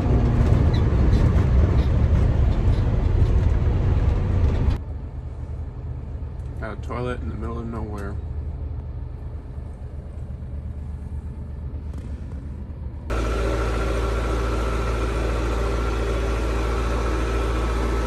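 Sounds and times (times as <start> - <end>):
truck engine and road rumble: 0.0 - 18.0
humming drone: 13.1 - 18.0.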